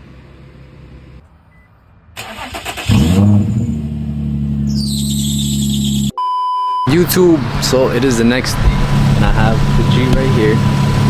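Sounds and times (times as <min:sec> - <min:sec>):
car engine revving and idling: 0:02.3 - 0:06.1, 0:06.9 - 0:11.0.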